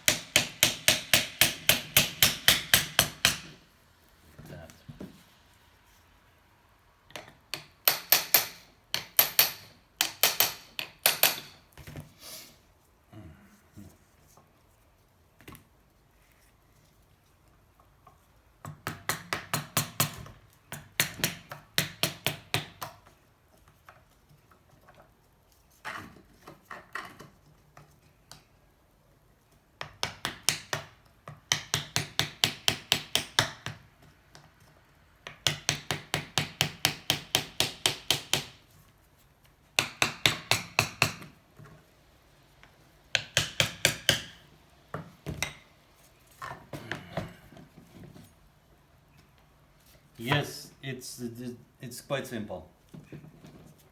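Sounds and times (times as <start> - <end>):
hammer tapping on metal: 7.2 - 11.6.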